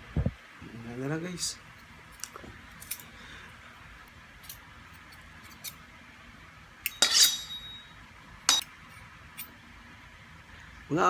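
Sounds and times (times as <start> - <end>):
cutlery clinking on plate: 6.9 - 7.9.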